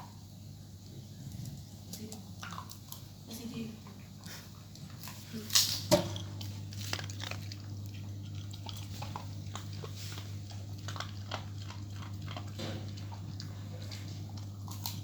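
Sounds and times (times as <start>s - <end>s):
steady low hum: 0.0s - 15.0s
dog chewing food: 1.0s - 3.2s, 3.8s - 15.0s.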